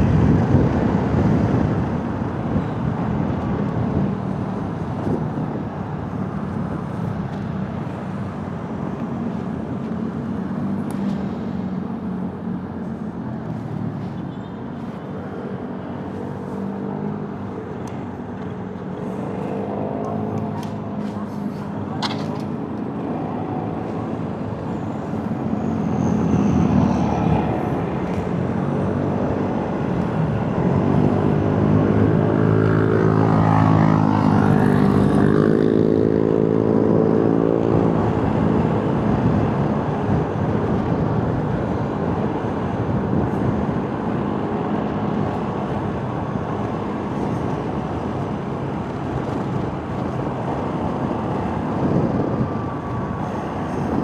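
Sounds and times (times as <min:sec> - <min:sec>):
motorcycle engine and road noise: 0:00.0 - 0:54.0.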